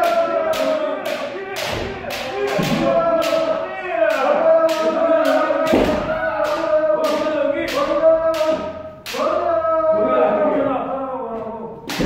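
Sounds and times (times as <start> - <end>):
people shouting: 0.0 - 12.0.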